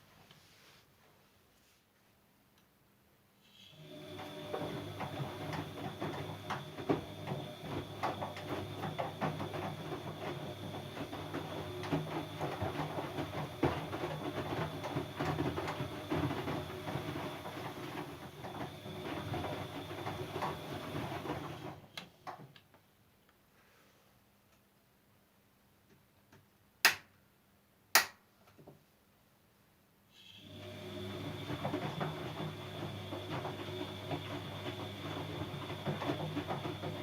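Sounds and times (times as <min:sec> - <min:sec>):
washing machine motor whine: 0:03.6 - 0:21.9, 0:30.2 - 0:37.0.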